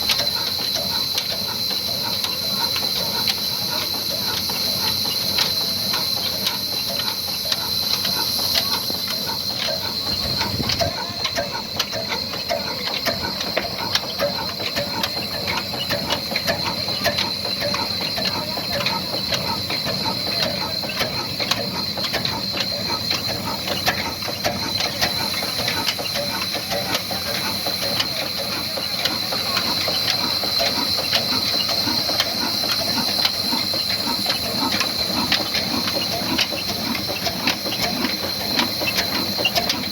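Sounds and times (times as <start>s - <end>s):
diesel engine clattering: 0.0s - 39.9s.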